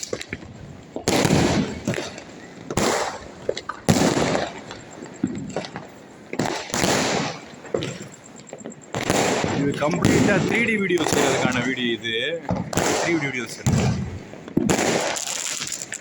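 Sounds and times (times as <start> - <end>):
firecrackers banging: 0.0 - 16.0.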